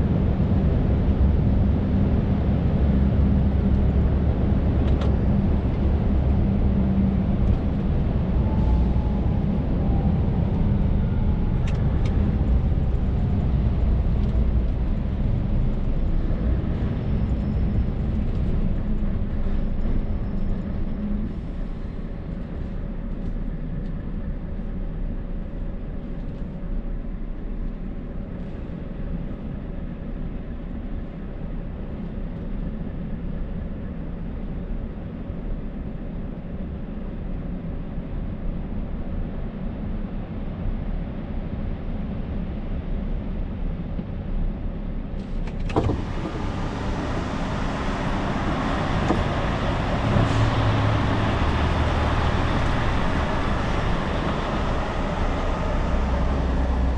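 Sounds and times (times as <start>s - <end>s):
tyre and road noise: 45.2s - 56.9s
truck engine running: 45.6s - 56.9s.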